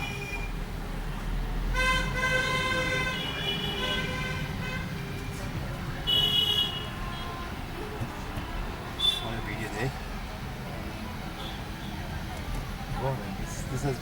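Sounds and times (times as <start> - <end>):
engine and road rumble: 0.0 - 14.0
vehicle horns honking: 1.7 - 5.0, 6.0 - 7.6, 9.0 - 9.4.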